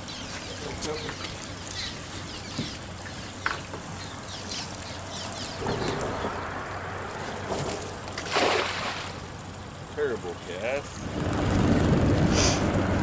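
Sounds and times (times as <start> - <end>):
net splashing into water: 8.2 - 9.2.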